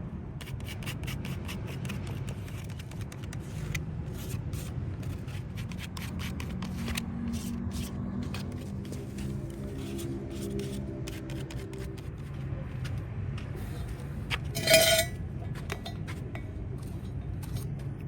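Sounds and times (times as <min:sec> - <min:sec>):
scraping on metal wheel rim: 0:13.7 - 0:17.7.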